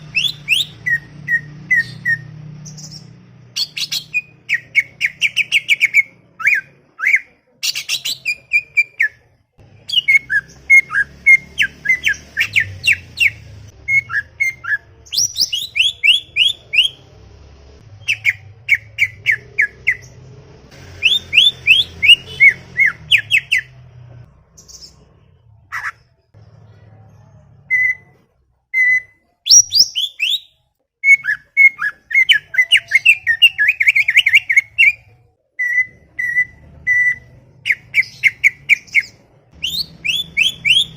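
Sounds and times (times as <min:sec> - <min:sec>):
bird singing chirps and whistles: 0:00.0 - 0:03.0, 0:09.9 - 0:17.0, 0:21.0 - 0:23.7, 0:28.7 - 0:35.0, 0:35.6 - 0:40.9.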